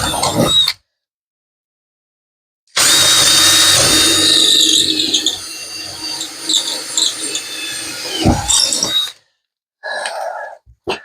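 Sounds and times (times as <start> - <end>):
power drill whining: 0.0 - 0.8, 2.7 - 9.2.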